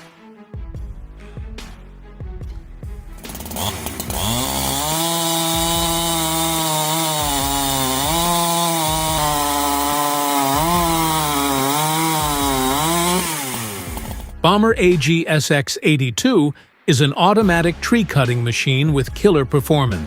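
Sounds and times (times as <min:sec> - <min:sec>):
chainsaw engine revving: 0:03.2 - 0:14.4.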